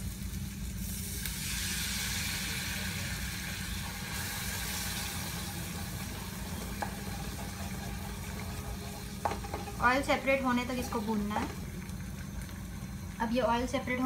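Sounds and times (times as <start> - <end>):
low hum: 0.0 - 14.0
spices sizzling in hot oil: 0.0 - 14.0
wooden spoon stirring: 6.8 - 10.0.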